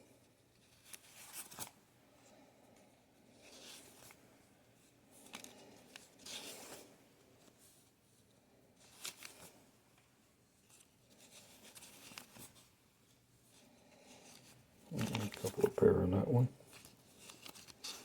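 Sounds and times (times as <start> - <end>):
paper bills rustling: 14.8 - 18.0.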